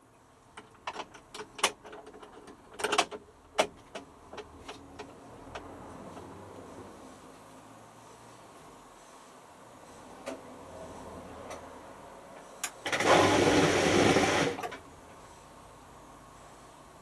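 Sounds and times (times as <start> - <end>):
washing machine rushing noise: 12.9 - 14.8.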